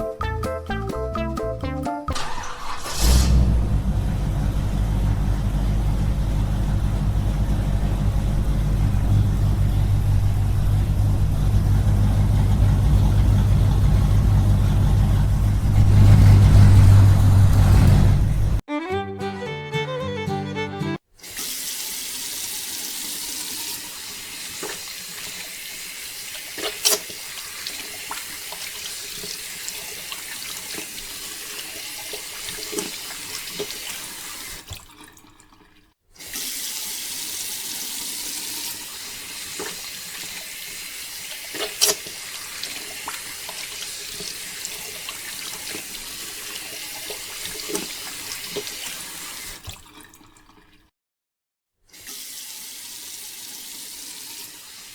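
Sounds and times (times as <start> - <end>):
water pouring in a stream: 21.2 - 50.9.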